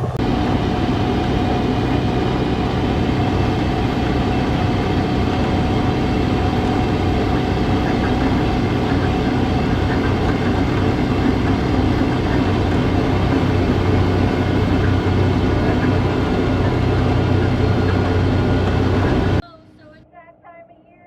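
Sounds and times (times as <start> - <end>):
vehicle engine running: 0.0 - 19.4.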